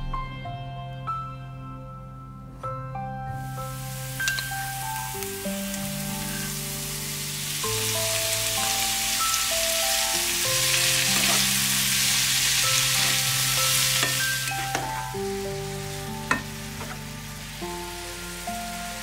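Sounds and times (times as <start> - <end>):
vegetables sizzling in oil: 3.4 - 19.0
spatula stirring in pan: 11.0 - 15.2.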